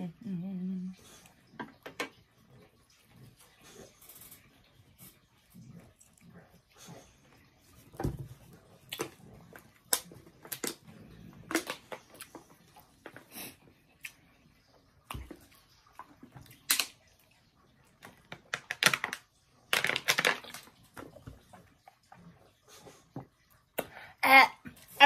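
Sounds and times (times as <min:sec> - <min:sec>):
person chewing: 0:08.8 - 0:14.3
plastic bottle crackling: 0:18.4 - 0:20.7.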